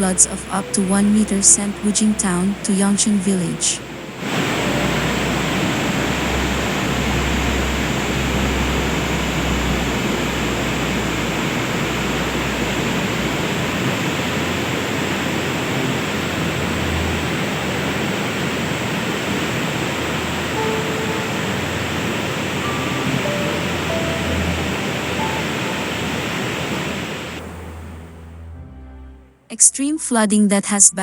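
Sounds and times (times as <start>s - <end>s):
deep rumble: 0.0s - 29.4s
fast-flowing floodwater rushing: 0.2s - 27.6s.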